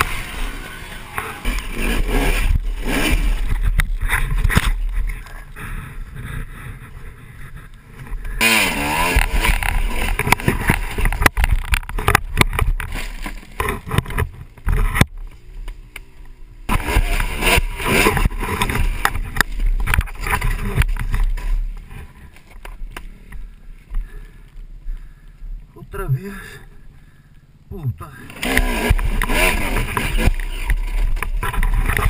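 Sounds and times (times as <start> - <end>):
dirt bike engine revving: 0.0 - 15.4, 16.6 - 22.4, 28.2 - 32.0.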